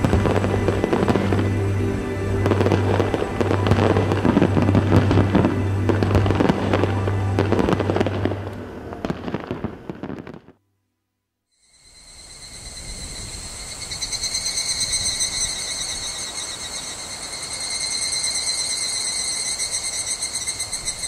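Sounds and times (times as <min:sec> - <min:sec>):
crickets chirping: 0:11.6 - 0:21.0.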